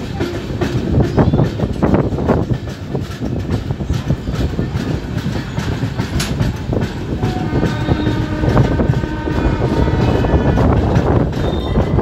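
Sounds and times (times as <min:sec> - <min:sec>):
train rumble inside coach: 0:00.0 - 0:12.0
wheels clattering over rail joints: 0:00.0 - 0:12.0.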